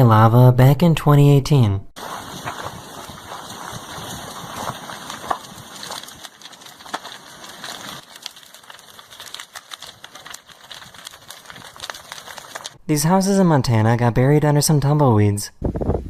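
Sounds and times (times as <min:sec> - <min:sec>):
burning wood crackling and popping: 0:02.0 - 0:12.8.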